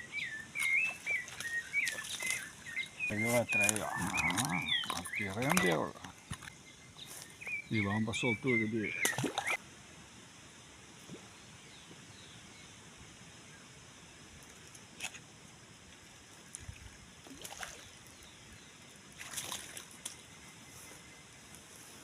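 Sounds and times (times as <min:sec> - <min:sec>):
running water: 0:00.0 - 0:06.5, 0:07.8 - 0:09.6
faint bird chirps: 0:00.0 - 0:09.6.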